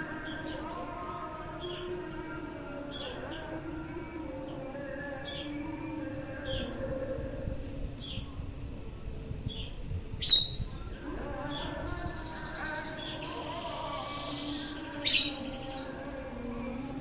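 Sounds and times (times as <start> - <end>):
lovebirds chirping: 10.2 - 10.7, 11.6 - 17.0
shrill bird calls: 10.2 - 10.7, 14.7 - 15.8.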